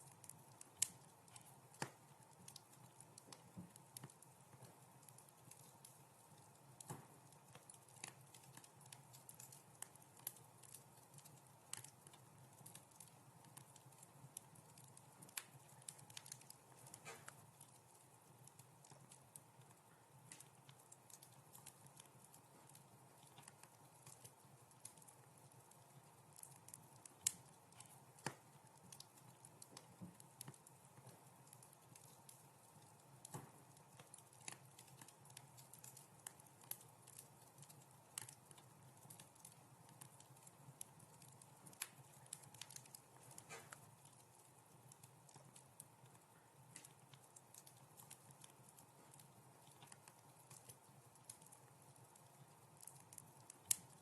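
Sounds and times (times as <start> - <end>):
wood fire crackling: 0.0 - 54.0
sharp pops of fire: 15.2 - 17.4, 33.2 - 37.2, 41.2 - 43.9.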